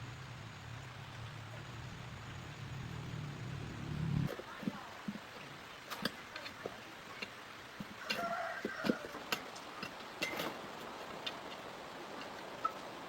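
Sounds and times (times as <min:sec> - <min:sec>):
hand tools clicking and tapping: 0:05.9 - 0:12.9.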